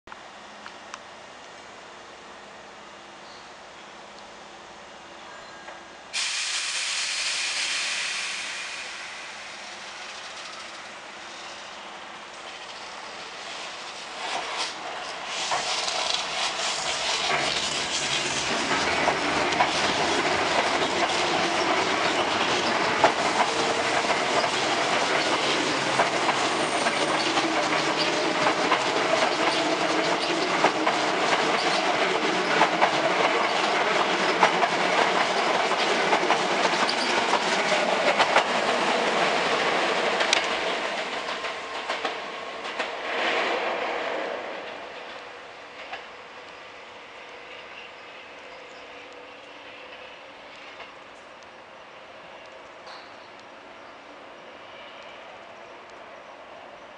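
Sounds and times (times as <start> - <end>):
wheels clacking over rail joints: 14.1 - 43.4.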